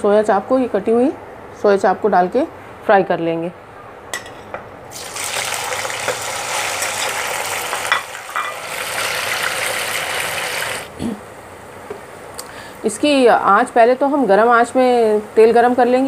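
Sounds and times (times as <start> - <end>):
food sizzling in hot oil: 4.9 - 10.9.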